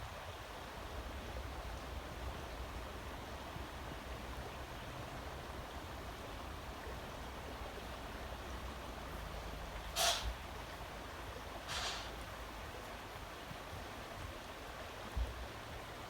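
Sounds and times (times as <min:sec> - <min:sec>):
creek rushing: 0:00.2 - 0:16.0.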